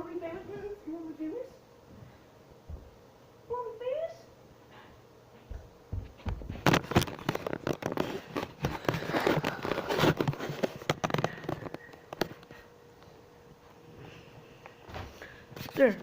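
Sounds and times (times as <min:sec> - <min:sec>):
handling noise at microphone: 0:04.8 - 0:12.7.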